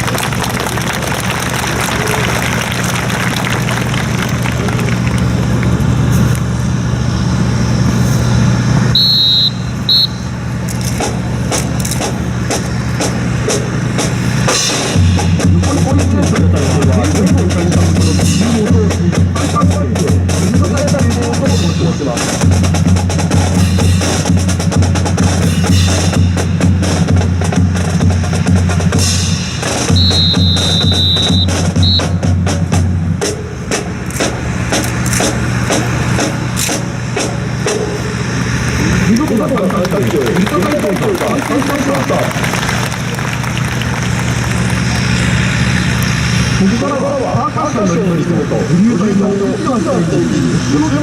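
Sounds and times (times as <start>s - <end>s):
low engine hum: 0.0s - 51.0s
high steady tone: 8.9s - 10.5s, 29.9s - 32.2s
bass drum beat: 11.0s - 34.4s
snare strokes: 33.2s - 38.1s.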